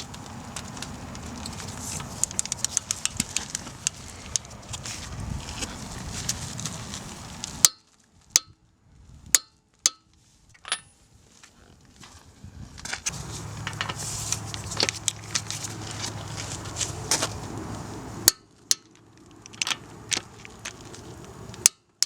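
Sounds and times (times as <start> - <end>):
hand tools clinking on metal: 13.1 - 17.4
steady low hum: 13.1 - 21.7.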